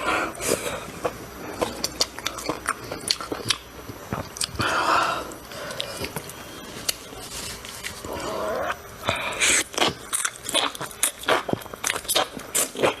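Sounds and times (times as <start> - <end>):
person chewing with wet smacks: 0.4 - 4.6, 9.5 - 13.0.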